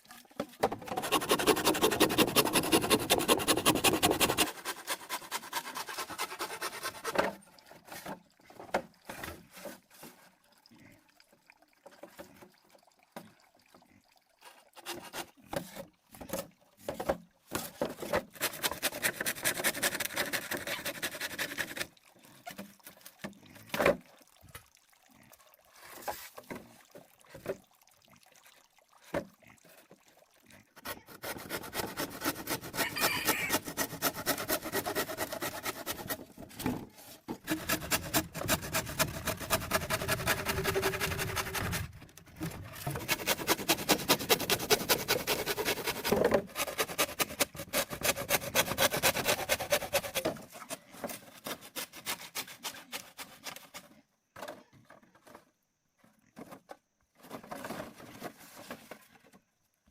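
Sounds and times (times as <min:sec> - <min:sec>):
rhythmic scraping on wood: 0:00.6 - 0:08.2, 0:14.8 - 0:21.9, 0:30.9 - 0:53.9.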